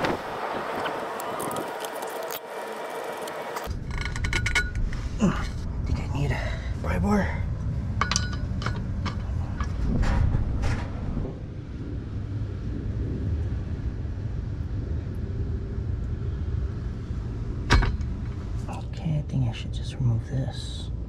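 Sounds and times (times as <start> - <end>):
steady low rumble: 0.0 - 21.0
metal tools clinking: 8.0 - 9.7.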